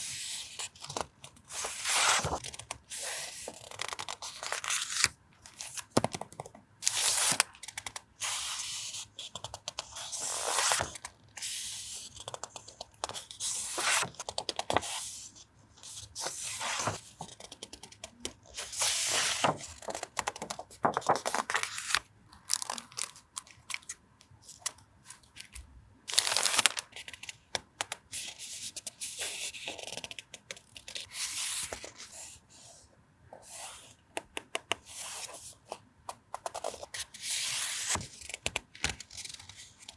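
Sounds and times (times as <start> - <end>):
stationery packets rustling: 16.8 - 27.5.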